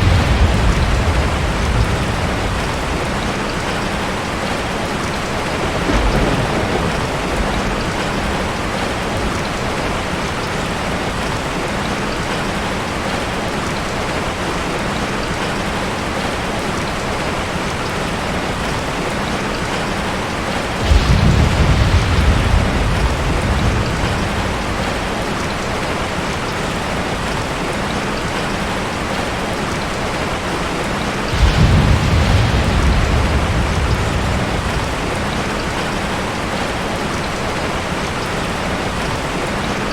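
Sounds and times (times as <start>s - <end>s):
low rolls of thunder: 0.0s - 11.2s, 20.4s - 27.3s, 30.8s - 37.8s
steady rain: 0.0s - 39.9s.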